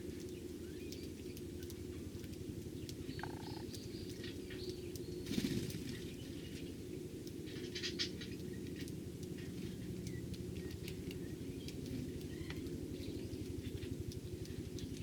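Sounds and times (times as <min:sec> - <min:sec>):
low background hum: 0:00.0 - 0:15.0
sparrows chirping: 0:02.7 - 0:15.0
wings fluttering: 0:05.2 - 0:06.7.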